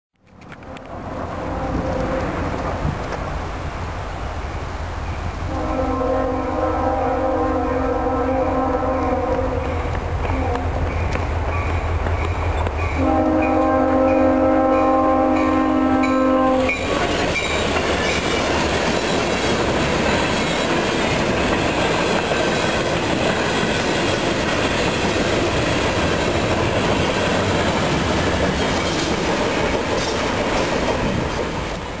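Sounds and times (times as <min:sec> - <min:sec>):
freight train rumbling past: 0:00.2 - 0:32.0
locomotive horn: 0:00.5 - 0:03.0, 0:05.5 - 0:11.1, 0:13.0 - 0:17.6
wheels clattering over rail joints: 0:16.7 - 0:31.8.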